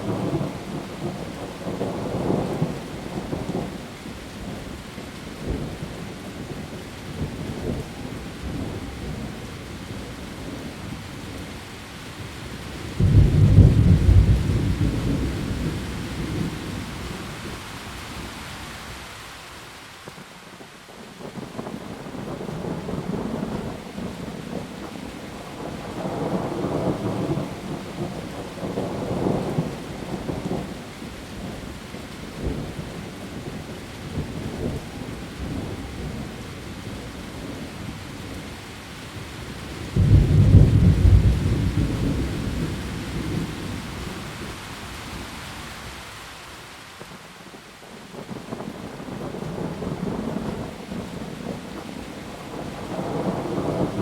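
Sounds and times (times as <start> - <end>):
heavy rain on leaves: 0.0 - 54.0
rolling thunder: 12.6 - 17.6, 39.5 - 45.2, 48.2 - 54.0.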